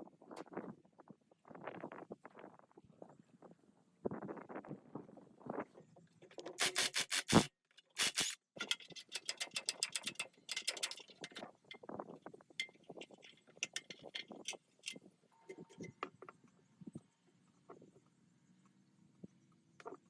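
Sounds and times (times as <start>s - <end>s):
hand tool scraping: 6.2s - 11.4s.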